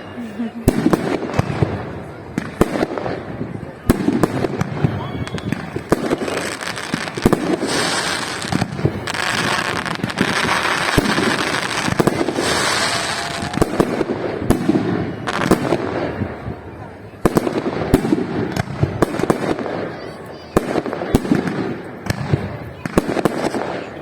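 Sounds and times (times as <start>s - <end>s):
fireworks crackling hiss: 0.0s - 16.6s
fireworks bangs: 0.0s - 24.0s.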